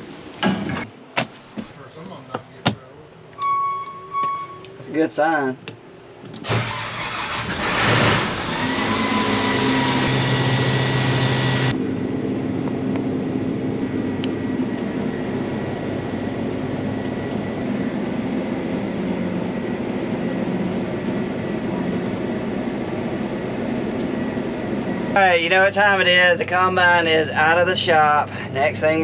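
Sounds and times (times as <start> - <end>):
diesel engine running: 6.1 - 29.0.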